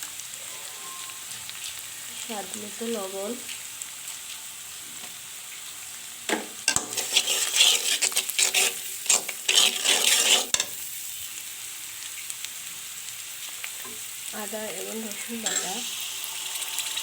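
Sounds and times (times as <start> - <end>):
food sizzling in hot oil: 0.0 - 17.0
spatula scraping and stirring: 6.3 - 10.8, 15.1 - 16.0.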